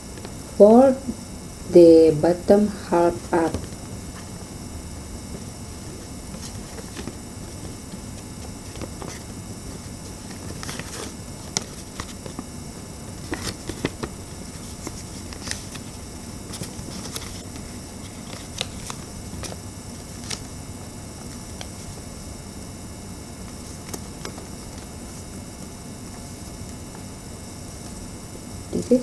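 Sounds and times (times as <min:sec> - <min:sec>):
paper rustling and crinkling: 0:05.4 - 0:20.5.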